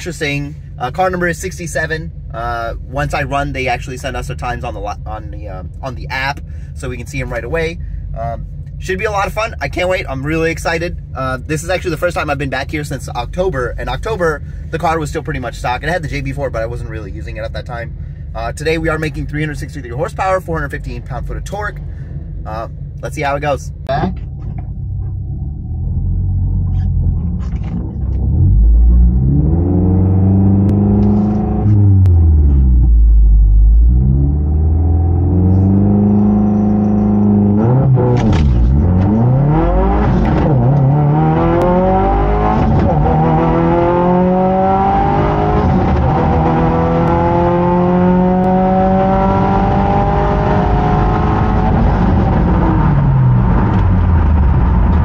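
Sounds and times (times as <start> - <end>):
car engine revving and accelerating: 25.1 - 55.0.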